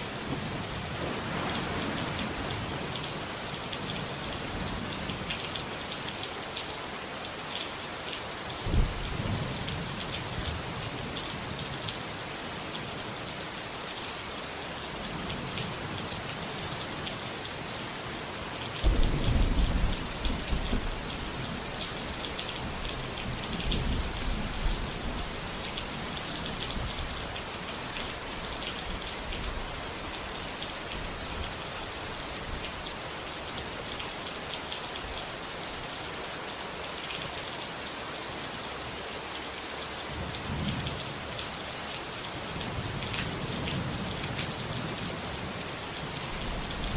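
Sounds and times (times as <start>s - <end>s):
steady rain falling: 0.0s - 46.9s
thunder rumbling: 0.3s - 4.8s, 18.8s - 21.6s.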